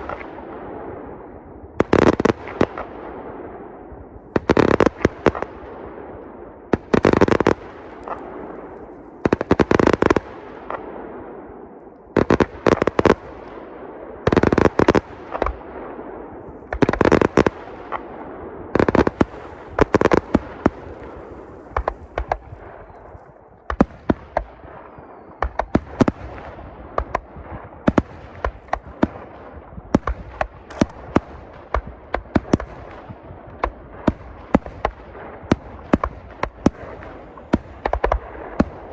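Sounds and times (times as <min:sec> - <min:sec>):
fireworks bangs with rumbling echo: 0:00.0 - 0:38.9
fireworks sharp cracks: 0:06.8 - 0:11.4, 0:30.0 - 0:38.9.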